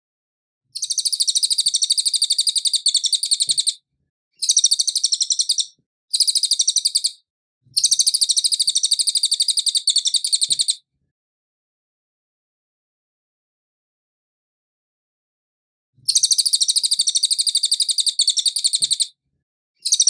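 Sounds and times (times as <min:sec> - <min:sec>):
songbird chattering: 0:00.8 - 0:03.8, 0:04.4 - 0:07.2, 0:07.8 - 0:10.8, 0:16.1 - 0:19.1.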